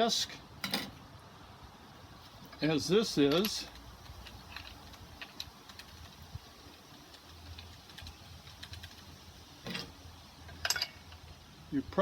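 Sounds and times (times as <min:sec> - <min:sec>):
metal parts clicking and tapping: 0:03.3 - 0:06.0, 0:10.5 - 0:11.2.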